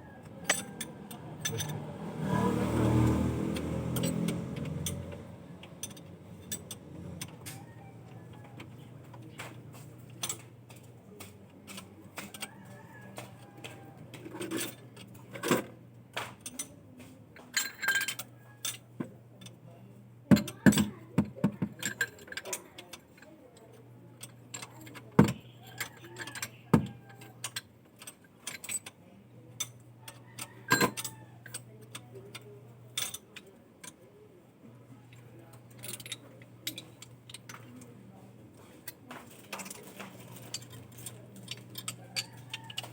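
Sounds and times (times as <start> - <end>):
clicks and metallic clinks: 0.2 - 1.9, 2.9 - 18.8, 20.3 - 29.0, 29.6 - 34.0, 35.1 - 38.0, 38.6 - 42.9.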